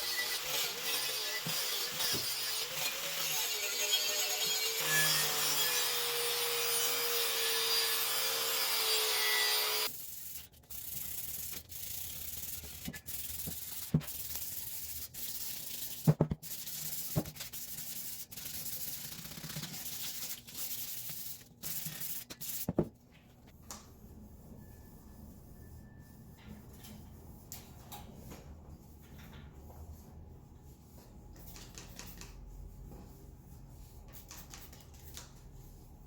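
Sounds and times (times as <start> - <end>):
rubbing strokes: 9.9 - 22.7.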